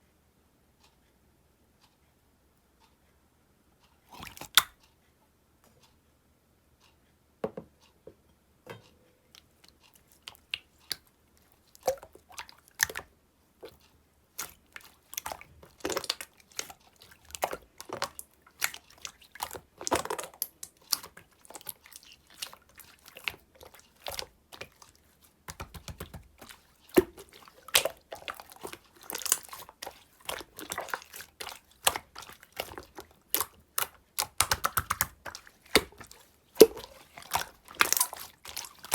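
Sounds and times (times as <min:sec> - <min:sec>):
slime squelching and popping: 0:04.1 - 0:04.8, 0:11.7 - 0:38.9.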